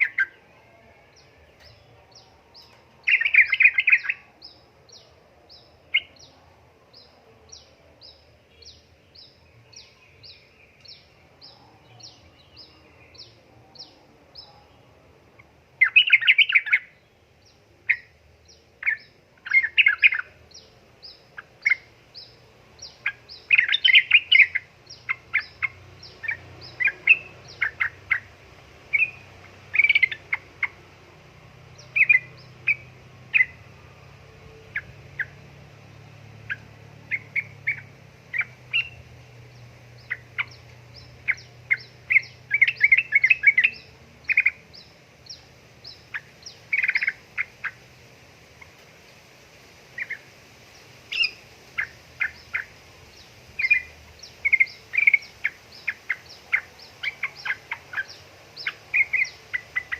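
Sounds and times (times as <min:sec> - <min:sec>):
bird chirping and chattering: 0:01.5 - 0:06.4, 0:15.4 - 0:17.0, 0:17.9 - 0:31.0, 0:31.7 - 0:33.7, 0:36.4 - 0:47.9, 0:50.0 - 0:59.9.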